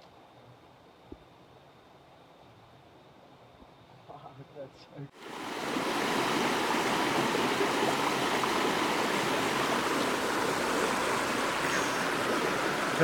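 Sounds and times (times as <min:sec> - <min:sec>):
stream water rushing: 0:05.2 - 0:13.0.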